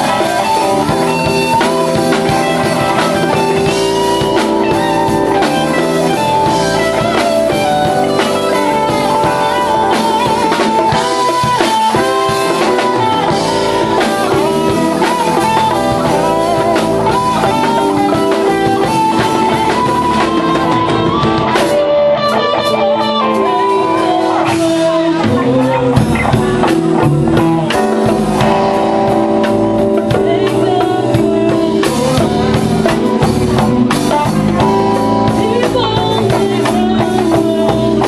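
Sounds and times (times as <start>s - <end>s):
band playing drums bass and keys: 0.0s - 38.0s
lead guitar line: 0.0s - 38.0s.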